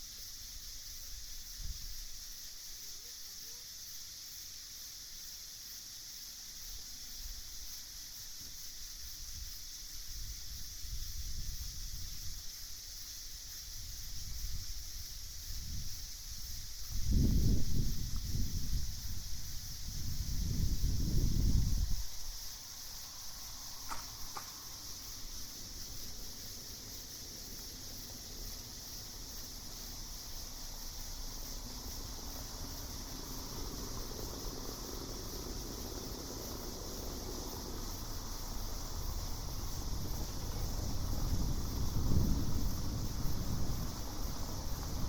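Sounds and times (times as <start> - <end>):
night insects chorus: 0.0 - 45.0
low wind rumble: 9.2 - 45.0.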